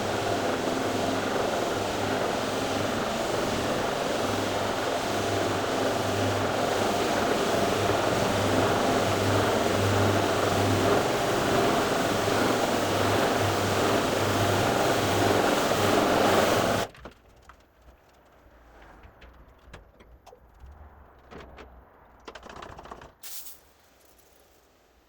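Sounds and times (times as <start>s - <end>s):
carpet cleaning vacuum running: 0.0s - 16.9s
clicks knocks and rattles: 18.8s - 23.2s
short hiss: 23.2s - 23.7s.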